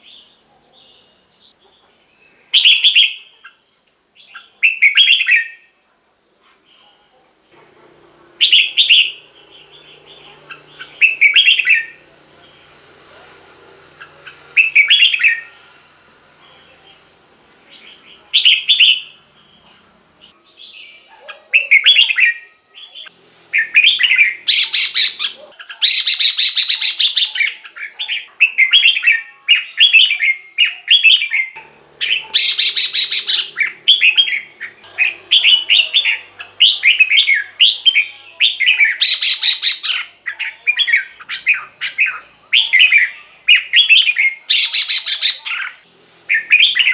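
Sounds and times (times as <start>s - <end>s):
bird singing warbled phrases: 0.0s - 5.8s, 8.3s - 46.9s
bird chattering: 8.3s - 15.8s, 20.8s - 46.9s.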